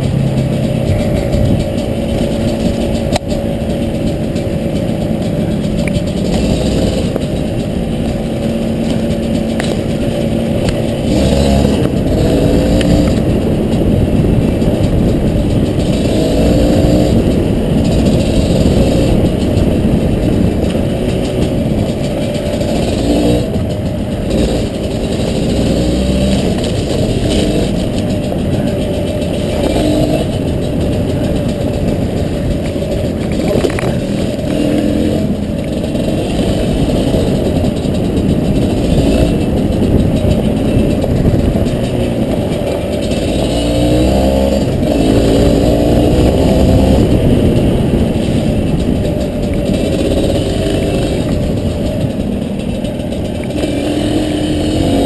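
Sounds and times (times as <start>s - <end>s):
two-stroke dirt bike engine: 0.0s - 55.0s.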